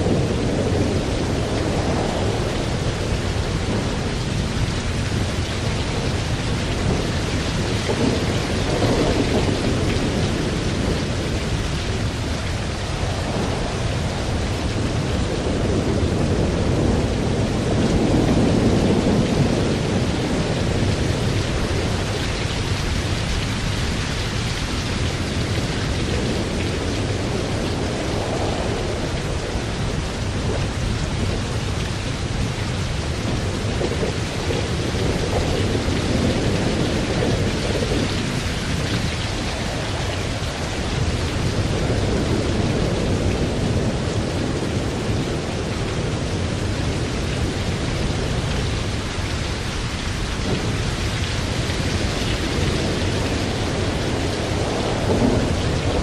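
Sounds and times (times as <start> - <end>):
heavy rain: 0.0 - 56.0
low rolling thunder: 0.0 - 56.0.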